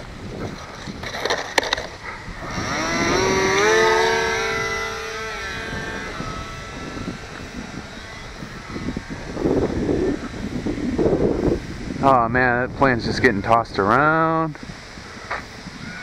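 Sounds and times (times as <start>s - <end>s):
wind buffeting microphone: 0.0s - 16.0s
model plane motor whining: 1.2s - 12.0s.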